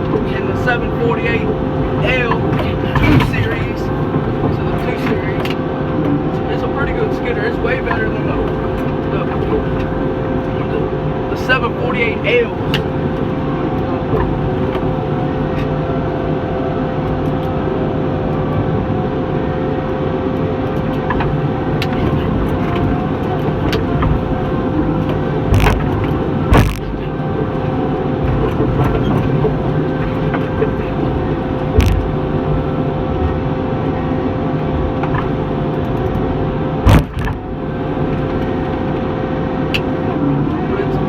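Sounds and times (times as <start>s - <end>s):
skidder engine running: 0.0s - 41.0s
steady machine whine: 0.0s - 41.0s
sharp knocks and clanks: 21.1s - 32.9s, 36.8s - 37.5s.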